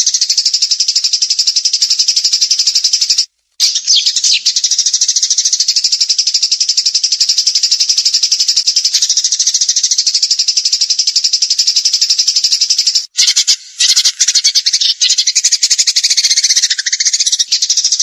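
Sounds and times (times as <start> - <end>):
songbird rattling trill: 0.0 - 18.0.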